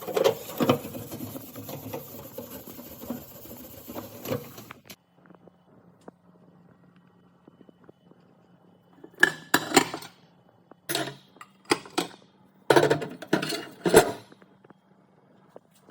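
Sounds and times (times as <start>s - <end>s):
faint low hum: 4.9s - 15.9s
kitchenware clattering: 9.2s - 10.2s, 10.9s - 14.3s.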